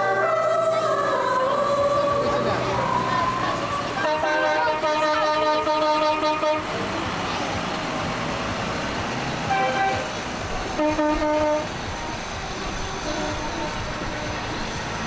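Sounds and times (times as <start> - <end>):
engines running: 0.0 - 15.0
vehicle horns tooting: 2.8 - 7.0, 9.4 - 11.9, 13.0 - 14.6.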